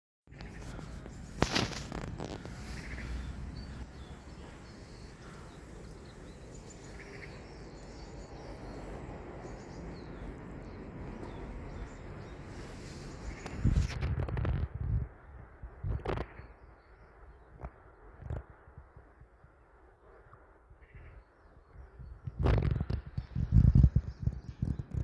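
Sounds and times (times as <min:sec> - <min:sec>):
faint bird chirps: 0:00.3 - 0:14.0
low steady rumble: 0:02.0 - 0:13.9.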